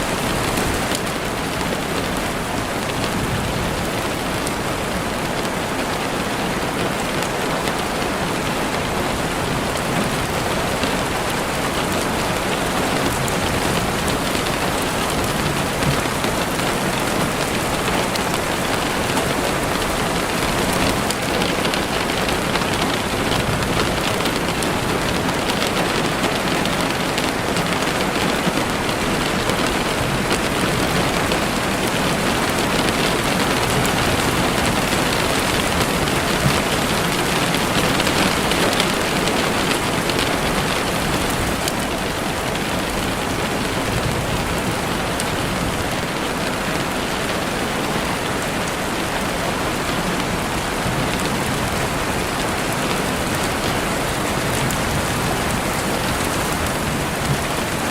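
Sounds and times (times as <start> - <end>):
rain falling through trees: 0.0 - 57.9.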